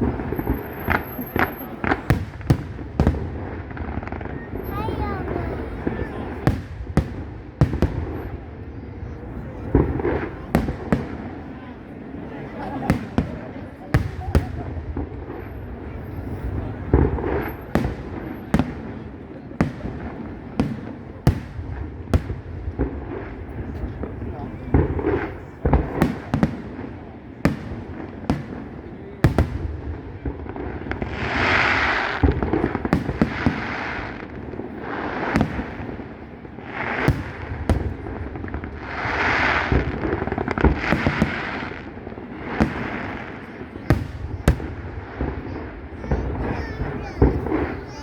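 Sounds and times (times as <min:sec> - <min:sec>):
fireworks bursting with sharp bangs: 0:00.0 - 0:48.0
fireworks hissing: 0:31.0 - 0:48.0.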